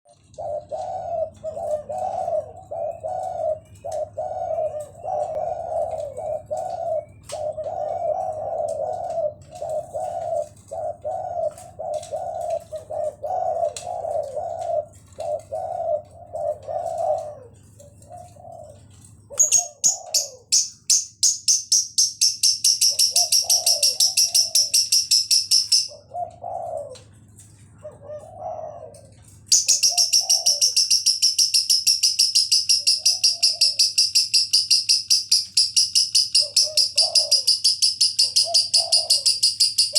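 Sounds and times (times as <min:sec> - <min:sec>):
dove cooing: 0:00.1 - 0:39.9
bird chirping high-pitched: 0:19.3 - 0:26.1, 0:29.5 - 0:39.9.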